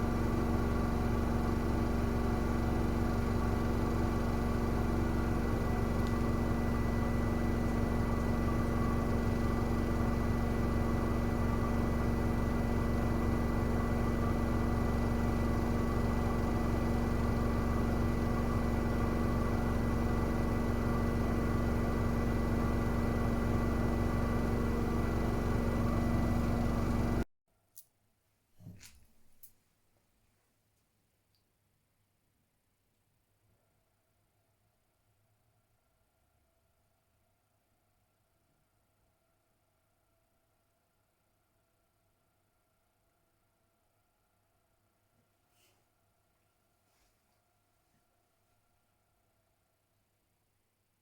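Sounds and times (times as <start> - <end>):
washing machine humming: 0.0 - 27.3.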